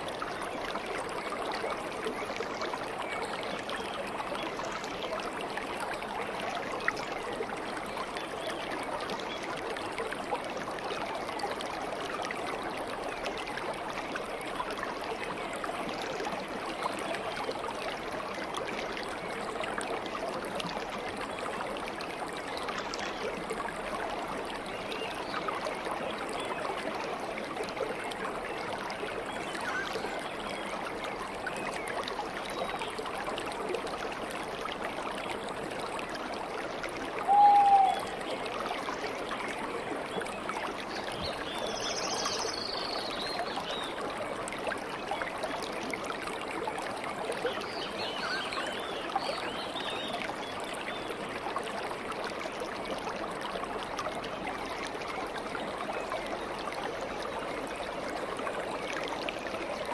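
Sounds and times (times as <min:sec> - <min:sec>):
stream of water flowing: 0:00.0 - 0:59.9
loud whistled bird note: 0:37.3 - 0:38.0
faint high bird chirps: 0:37.3 - 0:38.2.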